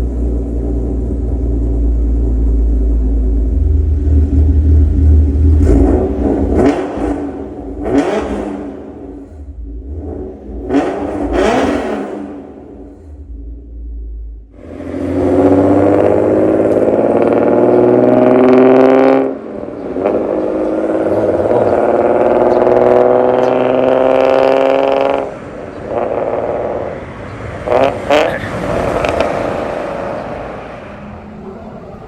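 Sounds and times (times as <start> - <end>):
car exhaust accelerating hard: 0.0 - 31.2.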